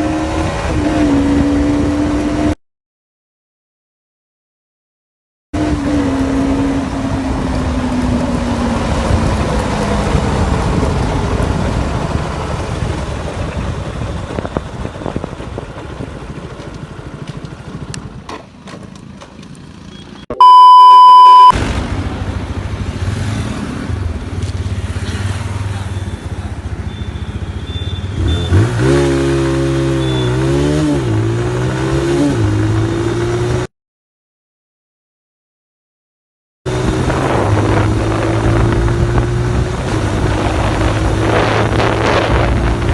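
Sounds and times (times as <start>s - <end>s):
motorcycle engine revving: 5.6s - 14.1s, 21.3s - 33.7s, 36.7s - 42.9s
loud steady beep: 19.9s - 21.6s.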